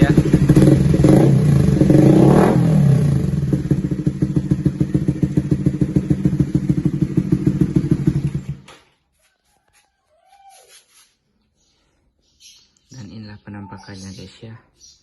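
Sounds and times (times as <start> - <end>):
motorcycle engine idling: 0.0 - 2.0, 2.6 - 8.7.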